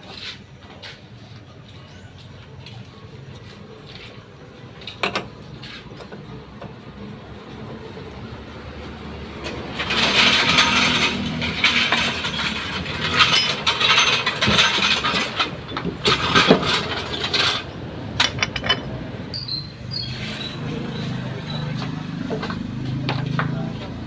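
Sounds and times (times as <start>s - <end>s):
metal tools clinking and scraping: 9.4s - 23.6s.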